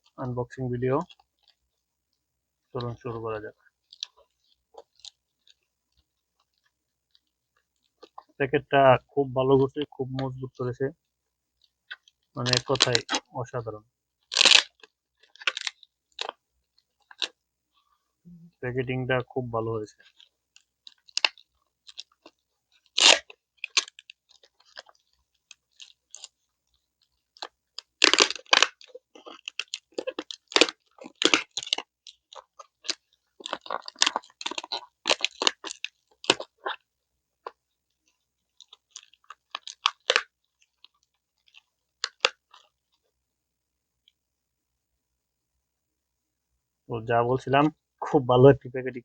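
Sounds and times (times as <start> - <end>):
package wrapping crinkling: 2.8 - 8.3, 11.6 - 13.3, 14.2 - 17.4, 20.0 - 43.1.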